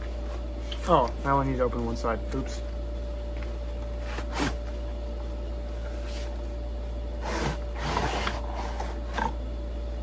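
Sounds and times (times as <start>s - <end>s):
low electrical hum: 0.0s - 10.0s
cardboard box scraping and rustling: 7.2s - 9.4s.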